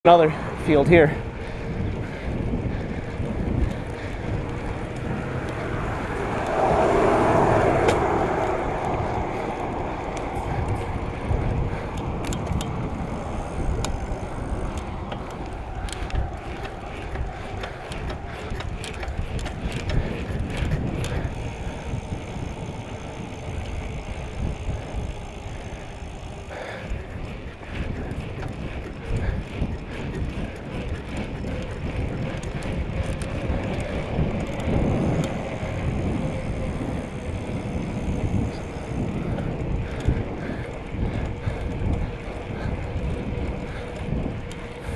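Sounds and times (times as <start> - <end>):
bicycle tyre noise: 0.0 - 44.9
wind rumbling on microphone: 0.1 - 44.9.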